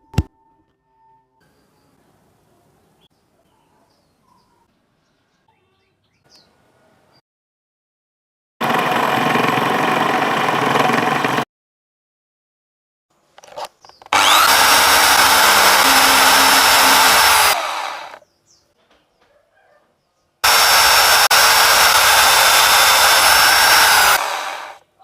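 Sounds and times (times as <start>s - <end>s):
electric motor whirring: 14.1s - 18.2s, 20.4s - 24.8s.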